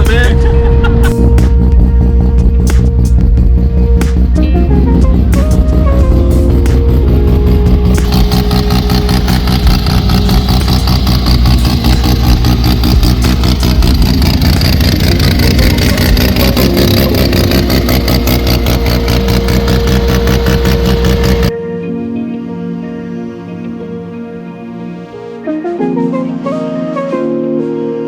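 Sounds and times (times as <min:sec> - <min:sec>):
car engine with pulsing exhaust: 0:00.0 - 0:21.6.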